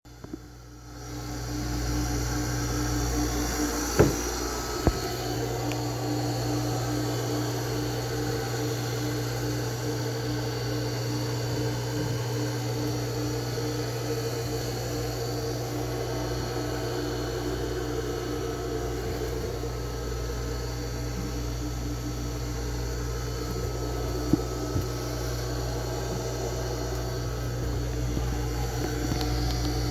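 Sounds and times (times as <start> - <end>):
engine-room machinery humming: 0.1 - 29.9.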